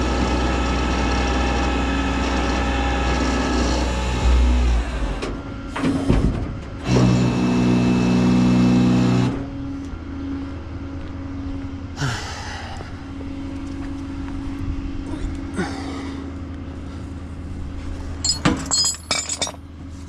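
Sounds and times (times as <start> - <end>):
steady-pitched engine hum: 0.0 - 20.0
vehicle engine running: 6.8 - 18.4.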